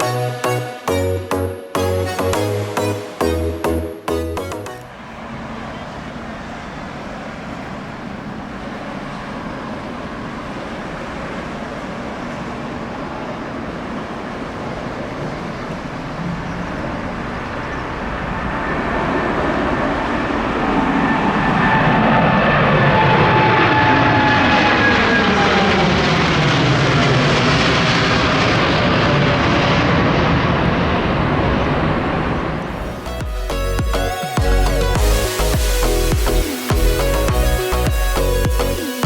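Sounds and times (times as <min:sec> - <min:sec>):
music: 0:00.0 - 0:04.9, 0:32.8 - 0:39.0
whining tones falling in pitch: 0:00.0 - 0:05.8, 0:17.3 - 0:29.9, 0:31.2 - 0:39.0
jet engines roaring: 0:00.0 - 0:39.0.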